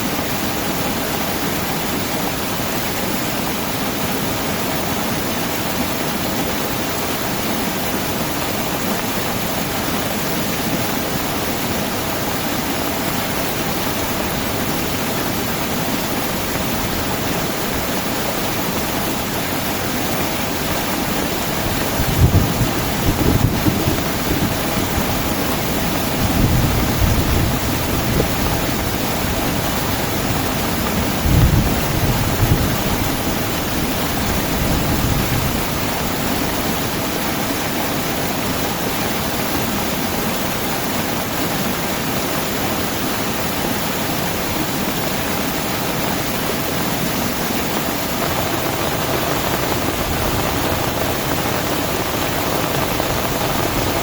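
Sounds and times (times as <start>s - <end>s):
heavy rain falling: 4.8s - 38.4s, 44.6s - 54.0s.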